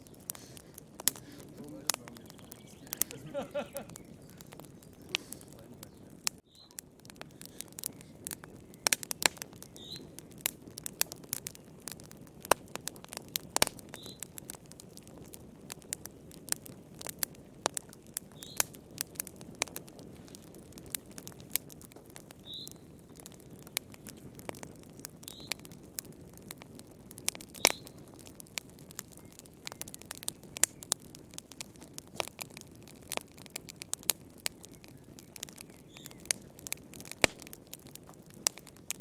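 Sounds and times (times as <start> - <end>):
sharp pops: 0.0 - 11.2, 29.0 - 38.9
low rush of flame: 0.0 - 39.0
wood crackling: 0.0 - 39.0.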